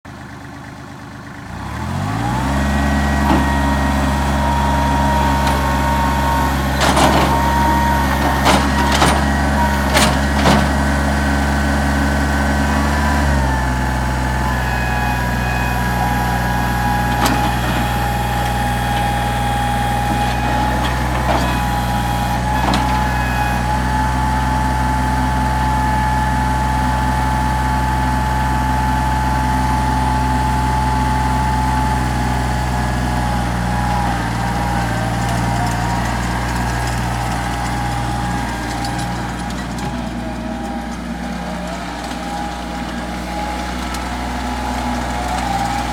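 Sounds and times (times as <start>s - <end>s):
diesel tractor engine running: 0.0s - 45.9s.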